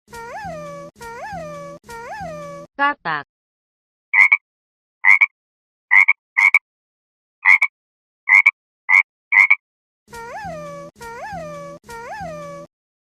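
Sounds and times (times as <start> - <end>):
frog croaking: 4.2 - 4.4, 5.0 - 5.3, 5.9 - 6.6, 7.4 - 7.7, 8.3 - 9.6.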